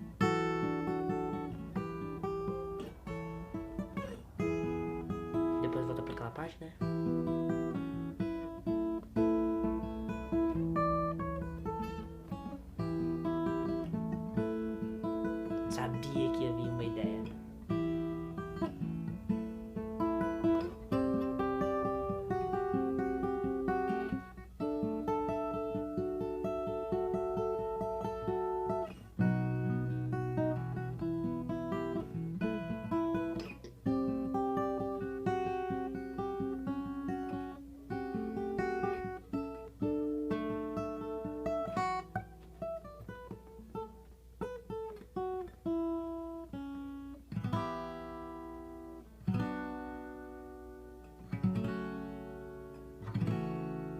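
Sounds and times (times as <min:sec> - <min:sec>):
acoustic guitar picking and strumming: 0:00.0 - 0:53.9.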